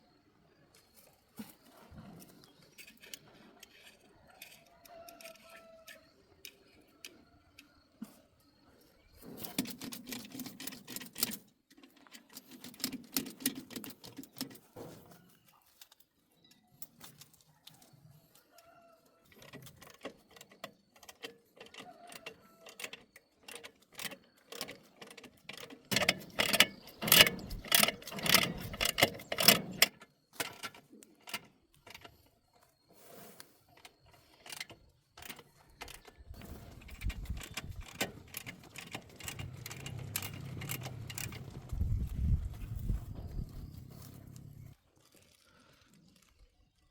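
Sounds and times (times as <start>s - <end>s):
metal tools clinking: 22.6s - 32.3s.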